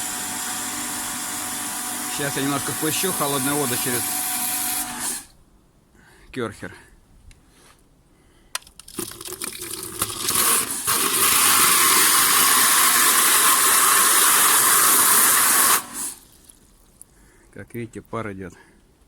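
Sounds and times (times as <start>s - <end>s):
pressure washer spraying water: 0.0s - 5.3s, 10.4s - 16.3s.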